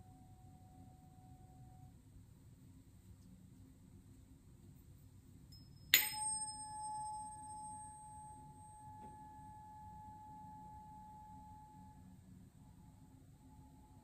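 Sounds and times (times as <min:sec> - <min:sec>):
tuning fork ringing: 0:00.0 - 0:02.0, 0:05.5 - 0:14.0.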